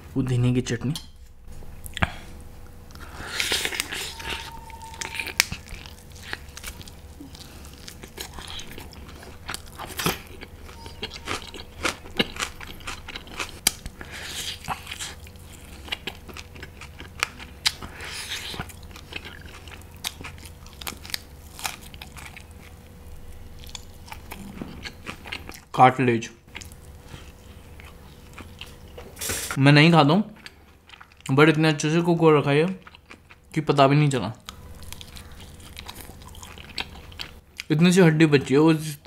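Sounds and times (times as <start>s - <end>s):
chewing and crunching meat: 3.0s - 25.8s, 26.5s - 29.1s, 30.4s - 31.4s, 32.6s - 33.6s, 34.4s - 37.8s.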